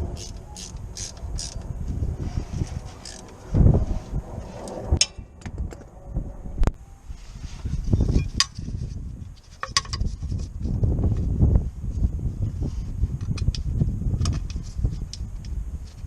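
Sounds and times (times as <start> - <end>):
low rumbling noise: 0.0 - 9.4.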